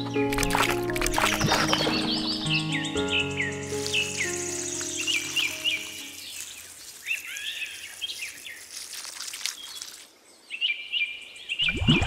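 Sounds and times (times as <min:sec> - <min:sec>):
bird chirping: 0:00.0 - 0:11.8.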